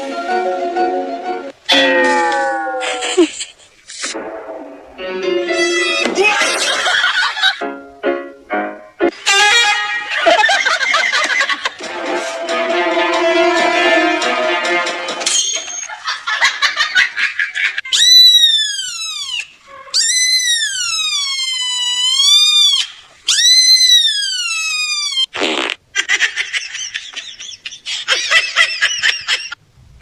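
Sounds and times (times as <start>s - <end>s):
cat meowing: 1.7s - 3.3s.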